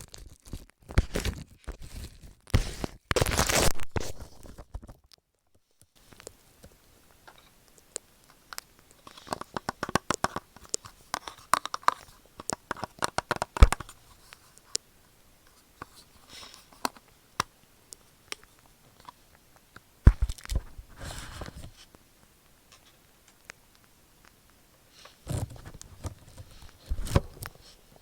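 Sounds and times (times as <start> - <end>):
crackling and clicking on microphone: 0.0 - 27.7
crunchy rub on microphone: 20.1 - 22.0.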